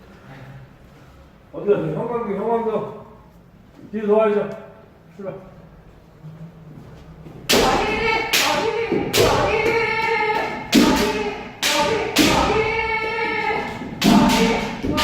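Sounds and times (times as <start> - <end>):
people shouting: 7.5 - 15.0.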